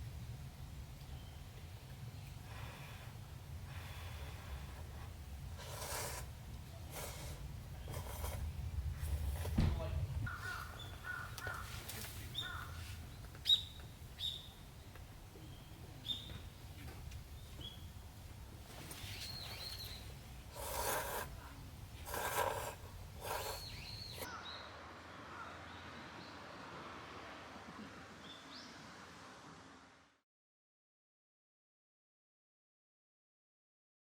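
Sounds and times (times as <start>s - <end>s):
wild birds chirping: 0.0s - 29.7s
low steady rumble: 6.2s - 11.4s
harsh bird calls: 10.2s - 16.6s, 18.9s - 26.9s.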